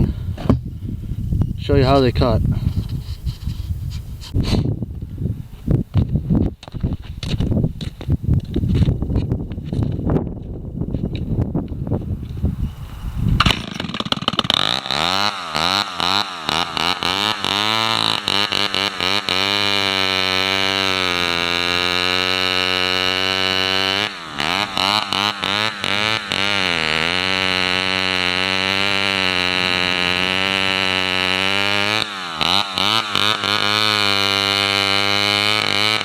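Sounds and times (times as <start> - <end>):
chainsaw starting and revving: 12.8 - 36.0.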